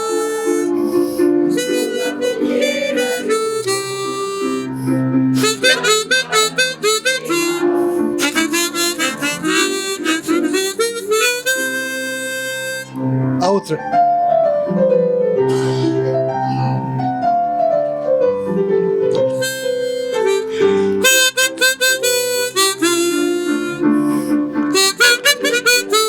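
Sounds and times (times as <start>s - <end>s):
harmonica playing melody: 0.0s - 13.4s, 19.1s - 26.0s.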